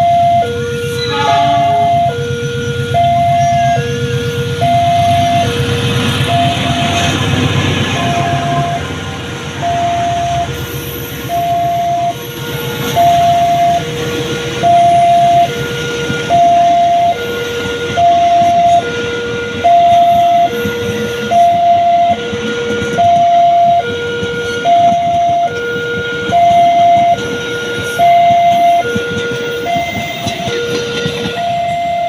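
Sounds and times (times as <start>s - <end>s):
train rumbling: 0.0s - 32.0s
two-tone electronic warning alarm: 0.0s - 32.0s.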